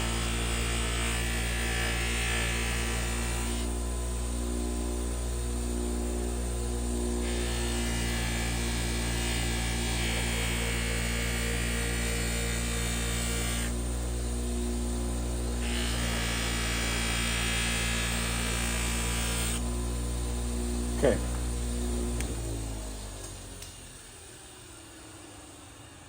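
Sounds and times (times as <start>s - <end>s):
knife blade scraping grinding wheel: 0.0s - 4.2s, 7.2s - 13.8s, 15.5s - 19.6s
bench grinder motor humming: 0.0s - 26.0s.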